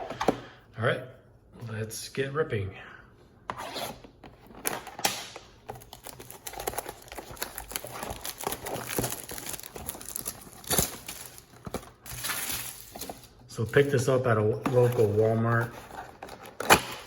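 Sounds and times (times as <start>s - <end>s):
packaging crinkling and tearing: 4.5s - 14.0s, 14.7s - 17.0s.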